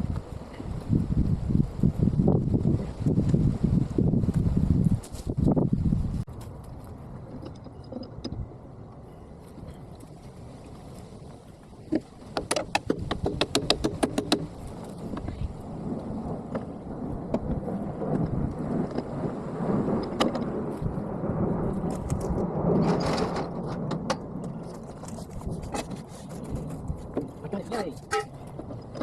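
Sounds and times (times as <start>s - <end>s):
sharp knocks: 11.9s - 14.5s.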